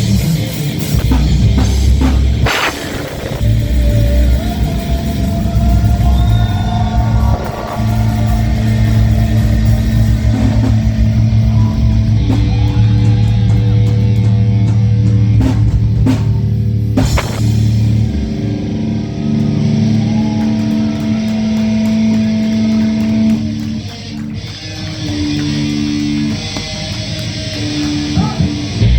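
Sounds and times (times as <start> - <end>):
live rock band playing: 0.0 - 28.9
sharp drum hits: 1.9 - 3.9, 17.0 - 18.1.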